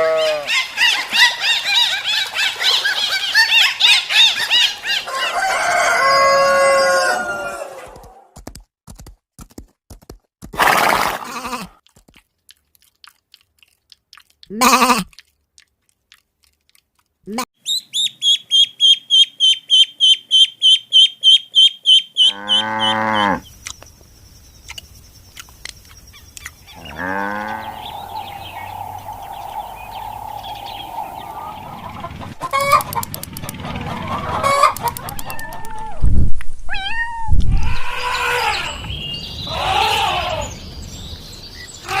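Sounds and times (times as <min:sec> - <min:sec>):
rooster crowing: 0:05.0 - 0:08.2, 0:27.0 - 0:32.9
high bird chirps: 0:17.6 - 0:33.6
chickens clucking: 0:26.4 - 0:35.9.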